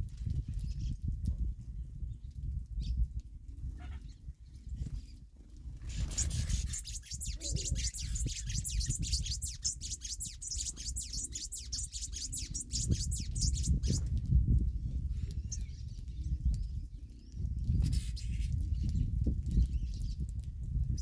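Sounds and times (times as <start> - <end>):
bird calling sharp high notes: 5.9 - 14.0.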